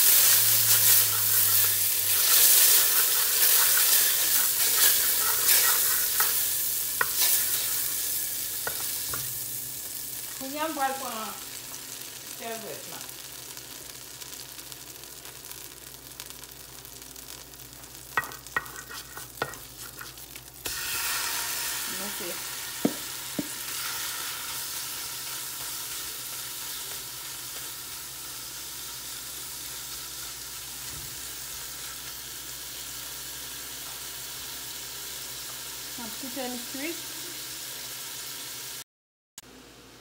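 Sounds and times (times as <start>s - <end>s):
butter and shrimp sizzling in a pan: 0.0s - 38.8s
wooden spoon tapping a pan: 18.2s - 18.8s, 22.8s - 23.6s.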